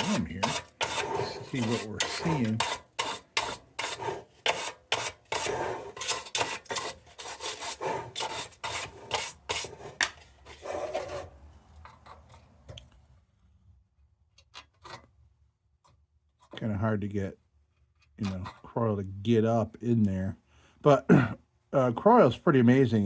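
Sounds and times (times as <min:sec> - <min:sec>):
rasping scraping on metal: 0:00.0 - 0:11.3.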